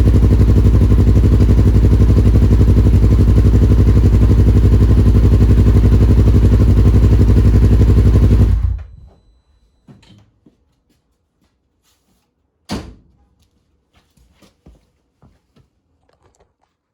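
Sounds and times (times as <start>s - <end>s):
engine idling: 0.0s - 9.1s
thump: 12.7s - 13.2s.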